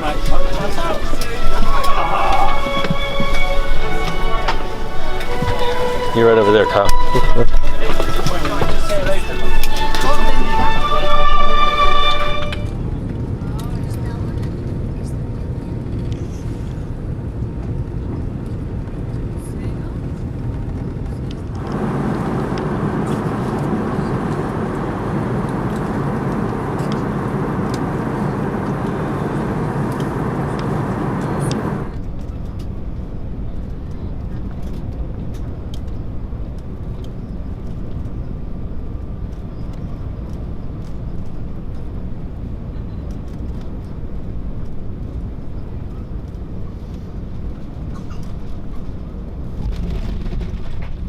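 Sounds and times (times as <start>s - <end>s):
airliner cabin rumble: 0.0s - 51.0s
even rushing noise: 21.5s - 32.0s.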